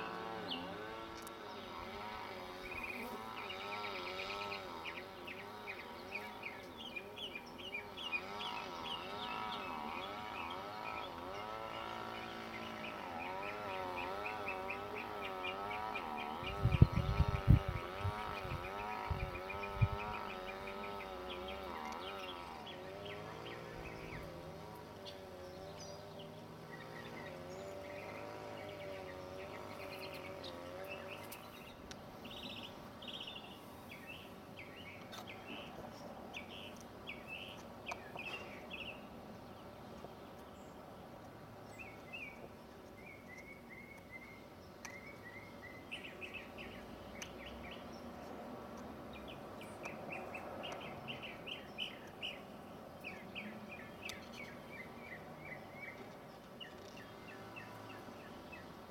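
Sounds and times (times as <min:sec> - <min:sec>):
wavering insect buzz: 0:00.0 - 0:39.0
songbirds chirping: 0:00.0 - 0:58.9
steady background noise: 0:00.0 - 0:58.9.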